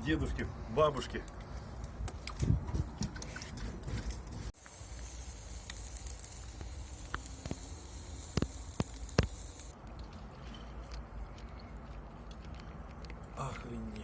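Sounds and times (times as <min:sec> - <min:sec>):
sharp pops: 0:04.6 - 0:09.8
steady high hiss: 0:04.6 - 0:09.8.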